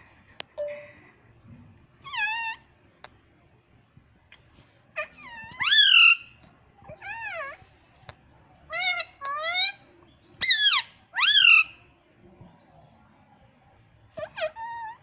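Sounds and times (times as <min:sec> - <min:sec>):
parrot shrill calls: 0:05.1 - 0:06.3, 0:10.4 - 0:11.8.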